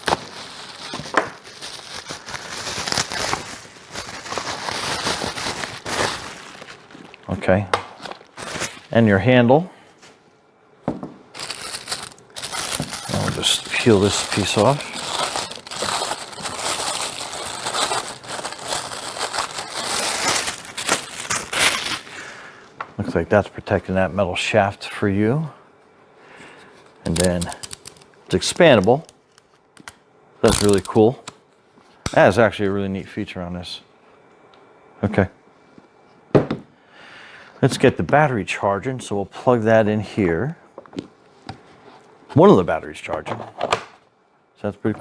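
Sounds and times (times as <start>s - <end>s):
packaging crinkling and rustling: 0.0s - 9.0s, 11.3s - 22.4s, 27.1s - 29.9s, 30.5s - 31.1s.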